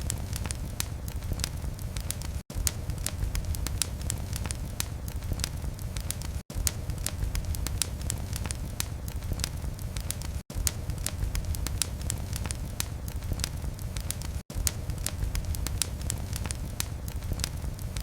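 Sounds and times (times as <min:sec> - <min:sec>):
low rumble of flame: 0:00.0 - 0:18.0
wood fire crackling and popping: 0:00.0 - 0:18.0.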